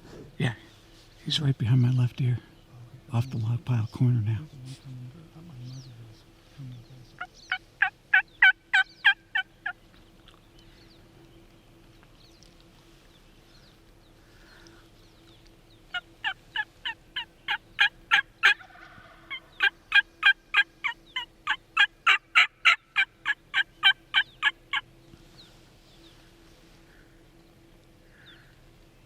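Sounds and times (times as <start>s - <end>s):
faint steady hum: 0.0s - 29.0s
turkey yelps: 7.2s - 9.8s, 15.9s - 24.9s.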